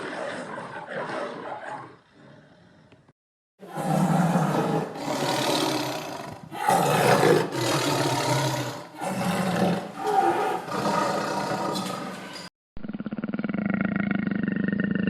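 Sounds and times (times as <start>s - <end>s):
large wild cat roaring: 3.6s - 15.0s.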